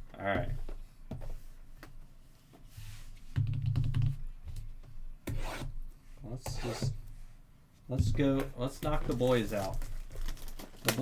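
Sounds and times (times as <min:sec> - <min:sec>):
cardboard and wrapper rubbing: 0:08.8 - 0:11.0.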